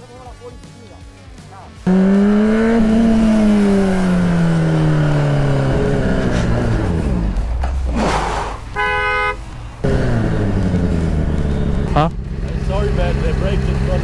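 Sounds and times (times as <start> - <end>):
vehicle engine running: 1.7 - 14.0
short horn beep: 8.7 - 9.4.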